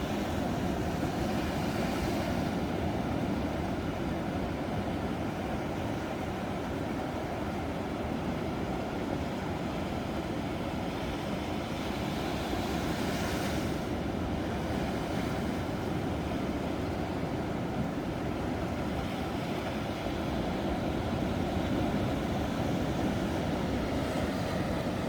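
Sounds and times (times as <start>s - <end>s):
ocean waves breaking: 11.6s - 25.0s.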